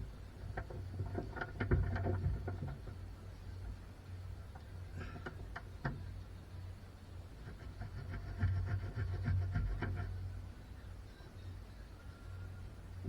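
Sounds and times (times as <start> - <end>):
low hum: 0.0 - 13.0
light clicks and knocks: 0.4 - 3.8, 4.5 - 6.1.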